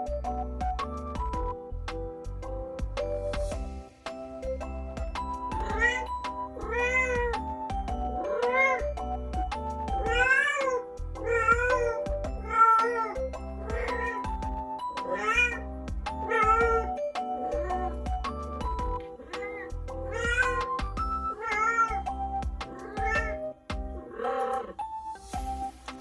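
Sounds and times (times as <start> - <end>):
background music: 0.0 - 26.0
cat meowing: 5.7 - 7.3, 10.0 - 13.2, 15.1 - 15.6, 19.4 - 22.1, 22.8 - 23.4.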